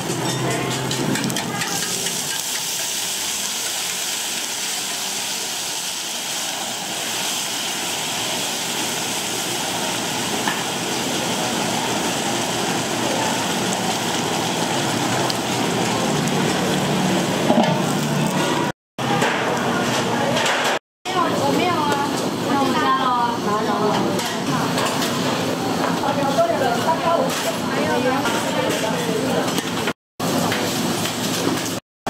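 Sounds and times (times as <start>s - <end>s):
food sizzling in oil: 0.0s - 18.4s.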